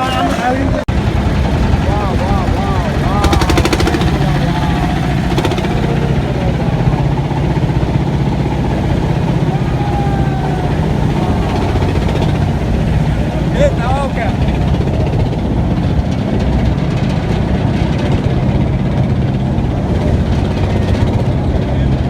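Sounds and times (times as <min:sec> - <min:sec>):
boat engine droning: 0:00.0 - 0:22.0
rapid rattle: 0:00.0 - 0:22.0.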